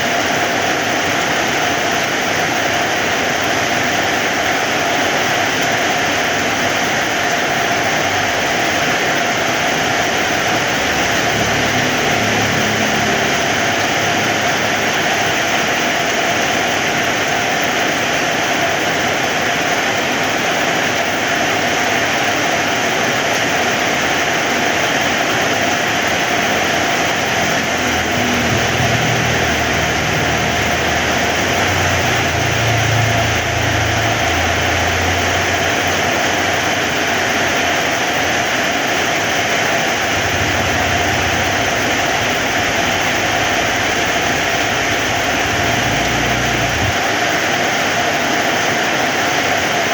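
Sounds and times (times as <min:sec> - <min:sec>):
heavy rain hissing: 0:00.0 - 0:49.9
low rumble: 0:26.2 - 0:36.1, 0:39.9 - 0:47.2.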